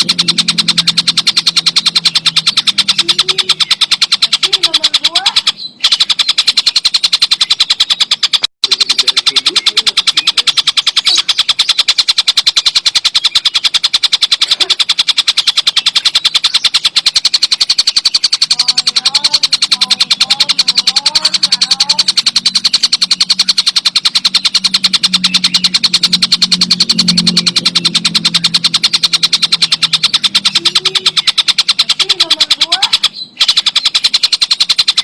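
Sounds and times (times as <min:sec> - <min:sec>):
rapid high-pitched bird rattle: 0:00.0 - 0:35.0
faint rising chirps: 0:05.4 - 0:31.9.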